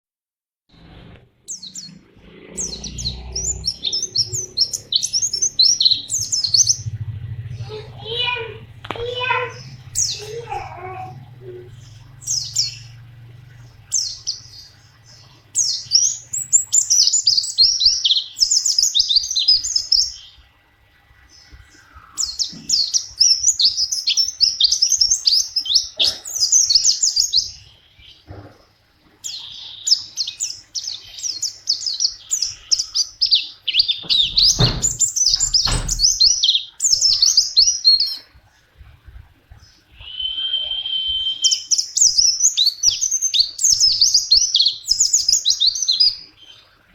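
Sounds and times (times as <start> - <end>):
songbird twittering: 1.5 - 20.4, 21.4 - 28.3, 29.2 - 38.2, 39.6 - 46.8
low thuds: 34.0 - 36.2.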